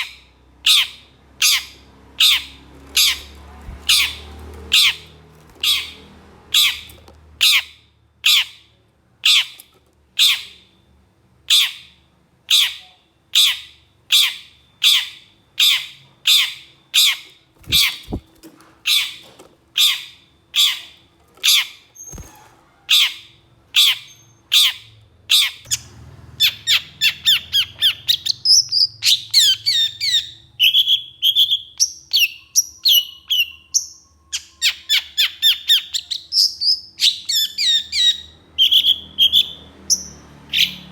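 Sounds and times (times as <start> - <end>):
bird harsh rasping calls: 0.0 - 9.6, 11.5 - 25.8, 26.4 - 33.7
bird chattering song: 0.0 - 10.8, 11.5 - 40.9.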